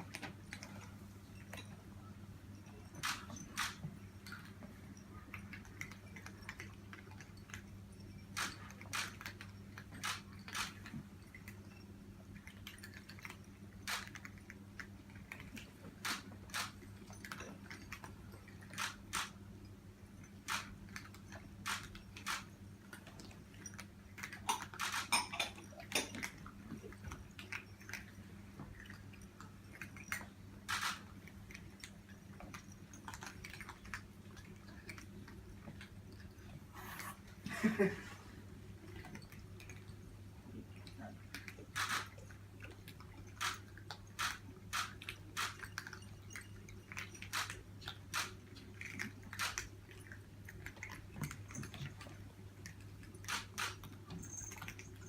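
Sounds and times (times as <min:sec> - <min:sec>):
cats crunching dry food: 0:38.8 - 0:55.0.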